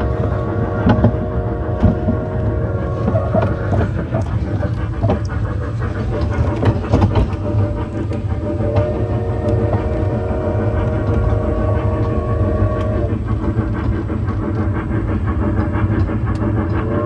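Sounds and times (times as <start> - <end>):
train low rumble: 0.0 - 17.0
cars knocking and rattling: 0.7 - 8.9.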